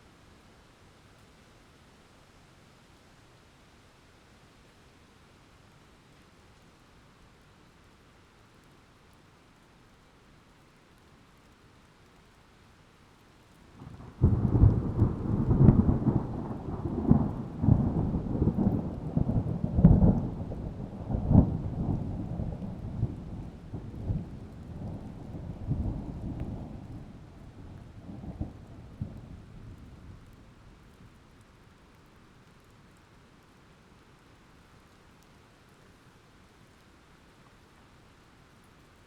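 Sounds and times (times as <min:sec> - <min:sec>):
thunder cracking and rumbling: 0:13.8 - 0:30.4.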